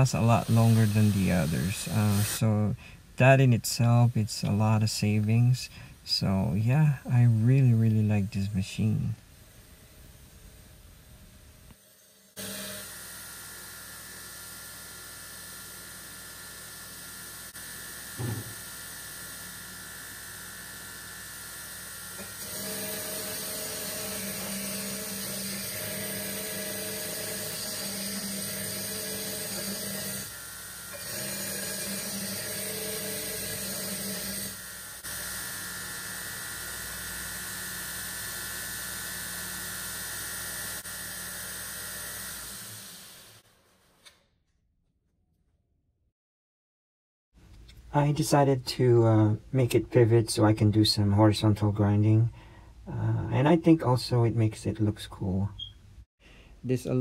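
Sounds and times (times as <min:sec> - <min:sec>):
belt grinder motor hum: 0:00.0 - 0:02.4, 0:11.7 - 0:43.4
steel grinding hiss: 0:00.0 - 0:02.8, 0:11.7 - 0:43.4
short knock: 0:18.2 - 0:18.6.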